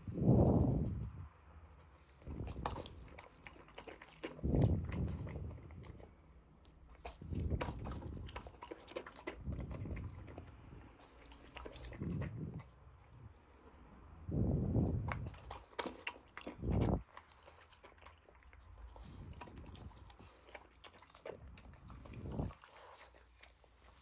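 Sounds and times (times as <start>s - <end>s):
dog chewing and crunching food: 1.7s - 24.0s.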